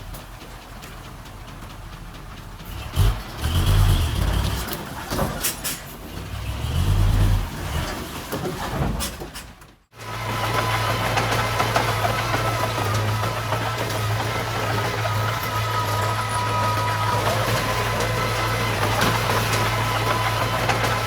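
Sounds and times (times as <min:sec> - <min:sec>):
heavy machinery engine surging: 0:10.0 - 0:21.0.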